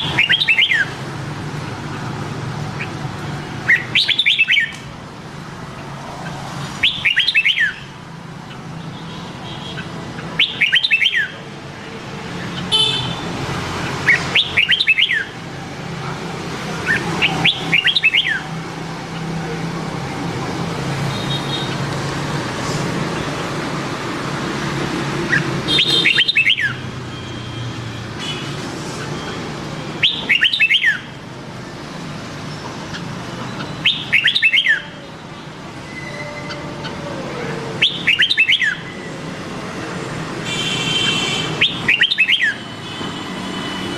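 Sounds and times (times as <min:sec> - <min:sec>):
bird singing whistled phrases: 0:03.7 - 0:04.8, 0:06.8 - 0:07.8, 0:10.4 - 0:11.4, 0:14.1 - 0:15.3, 0:16.9 - 0:18.4, 0:25.8 - 0:26.8, 0:30.0 - 0:31.0, 0:33.5 - 0:34.9, 0:37.8 - 0:38.9, 0:41.6 - 0:42.6.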